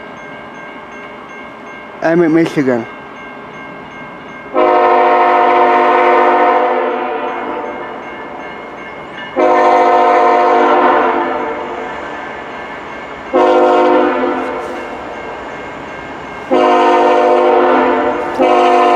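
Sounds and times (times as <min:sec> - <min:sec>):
locomotive air horn blasts: 0:04.6 - 0:07.7, 0:09.4 - 0:11.6, 0:13.3 - 0:15.0, 0:16.5 - 0:18.9.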